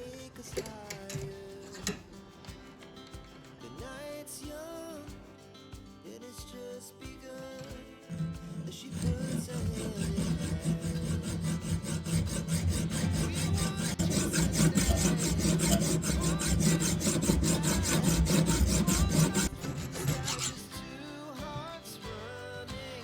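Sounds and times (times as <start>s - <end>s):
knife sharpening rasp: 8.5s - 20.8s.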